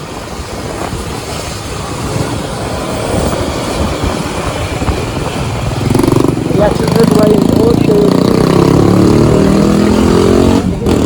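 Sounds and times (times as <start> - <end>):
motorcycle engine running loud: 2.0 - 11.0.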